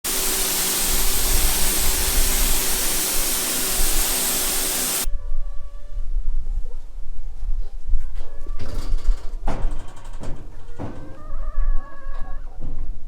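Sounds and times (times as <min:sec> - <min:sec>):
water spraying hard: 0:00.0 - 0:05.1.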